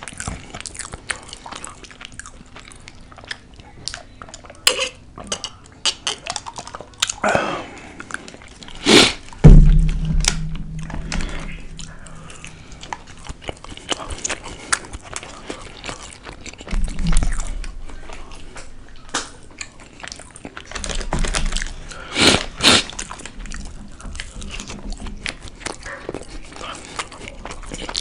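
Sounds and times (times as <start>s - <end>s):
chewing and biting food: 0.0s - 7.2s, 7.8s - 28.0s
low thump: 9.4s - 12.5s.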